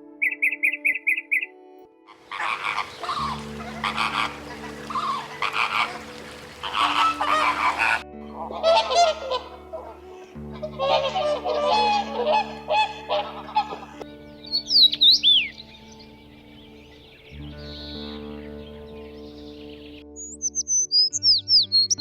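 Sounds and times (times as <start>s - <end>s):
flamingos honking: 2.1s - 14.0s.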